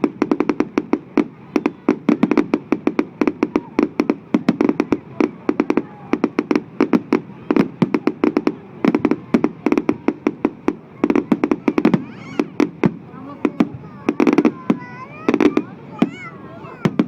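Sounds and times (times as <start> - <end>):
fireworks banging: 0.0 - 17.0.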